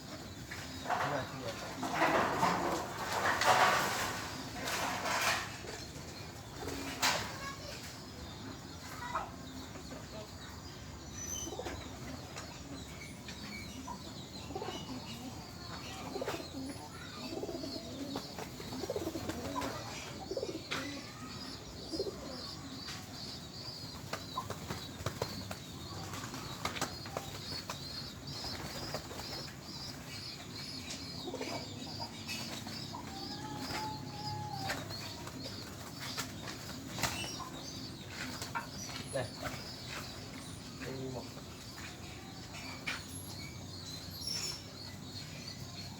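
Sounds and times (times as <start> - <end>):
pigeons cooing: 14.4 - 22.8, 30.9 - 40.2
pigeons flapping wings: 24.1 - 29.5.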